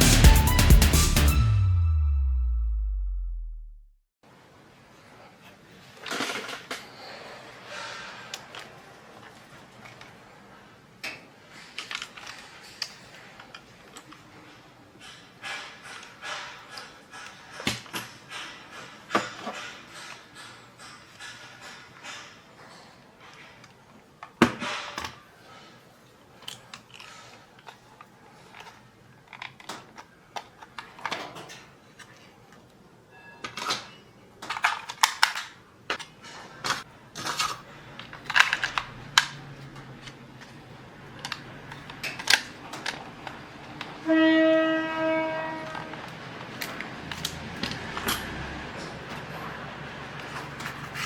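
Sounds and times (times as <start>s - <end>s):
steady pitched tone: 0.0s - 4.0s
toy parts and tools clicking: 26.4s - 32.6s, 33.4s - 43.9s, 45.6s - 48.4s.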